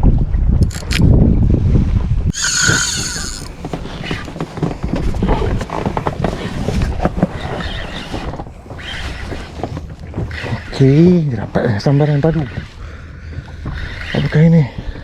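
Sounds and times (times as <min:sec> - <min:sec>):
wind on microphone: 0:00.0 - 0:15.0
water noise around boat: 0:01.6 - 0:15.0
high-pitched tone: 0:02.3 - 0:03.5
fishing gear clicks and knocks: 0:02.3 - 0:12.7.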